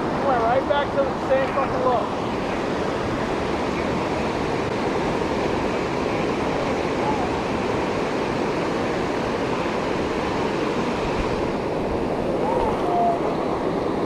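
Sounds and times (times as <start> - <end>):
river water rushing: 0.0 - 14.0
wind on microphone: 0.0 - 14.0.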